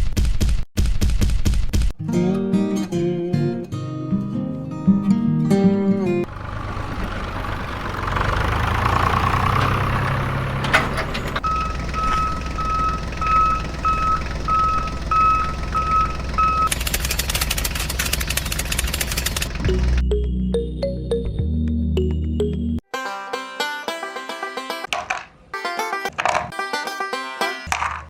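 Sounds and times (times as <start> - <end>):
vehicle engine running: 6.2 - 20.1
reversing alarm beeping: 11.0 - 16.8
rapid clicking: 16.5 - 20.0.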